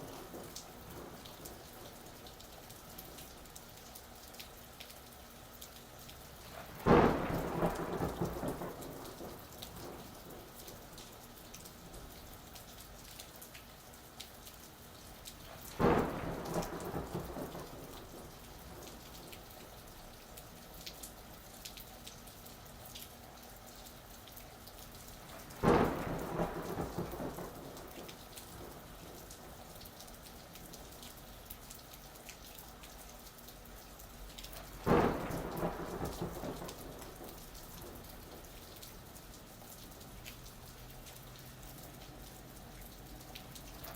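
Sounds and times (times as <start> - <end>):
thunderclaps rumbling: 0.0 - 1.9, 6.5 - 10.8, 15.8 - 19.0, 25.4 - 29.5, 34.7 - 38.6
steady rain: 0.0 - 43.9.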